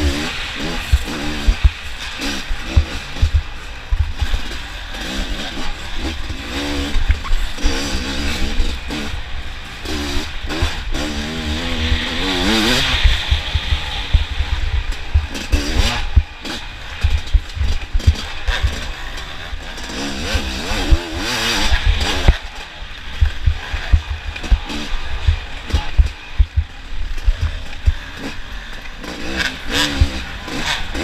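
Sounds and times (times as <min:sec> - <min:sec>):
wind buffeting microphone: 0:00.0 - 0:04.5, 0:11.6 - 0:19.0, 0:23.1 - 0:28.2
racing engines revving past: 0:00.0 - 0:31.0.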